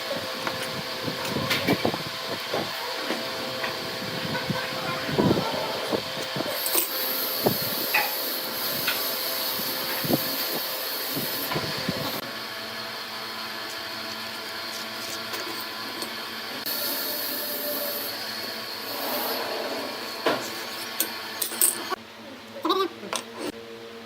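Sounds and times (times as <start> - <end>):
power tool humming: 0.0 - 22.0.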